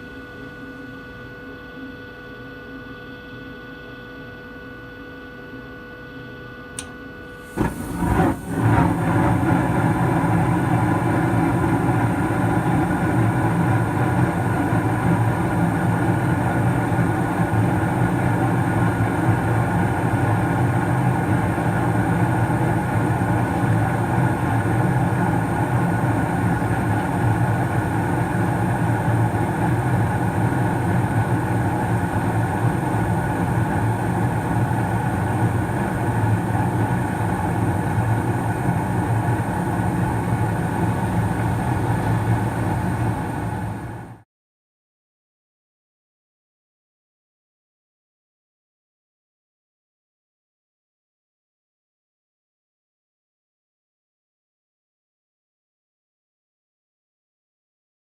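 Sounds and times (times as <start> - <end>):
gas furnace rushing hum: 6.8 - 44.2.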